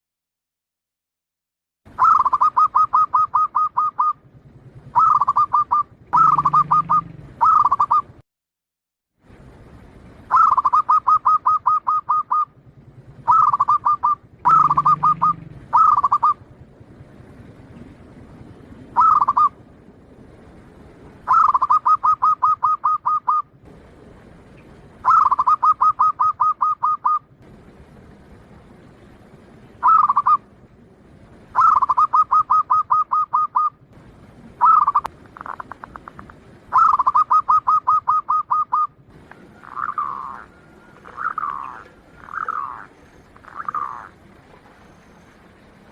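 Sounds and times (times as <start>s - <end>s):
dove cooing: 2.0s - 8.1s, 10.3s - 16.5s, 18.9s - 19.6s, 21.2s - 23.5s, 25.0s - 27.2s, 29.8s - 30.5s, 31.5s - 33.8s, 34.6s - 45.6s.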